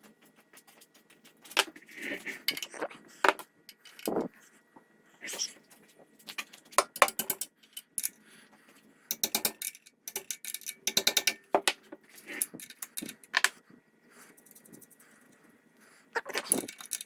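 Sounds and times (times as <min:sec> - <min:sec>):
ratchet wrench clicking: 0:09.1 - 0:11.4.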